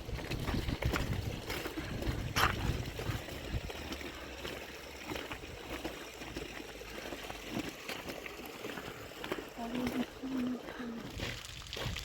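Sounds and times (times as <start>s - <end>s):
small drips and splashes: 0.0s - 12.0s
water trickling: 0.0s - 12.0s.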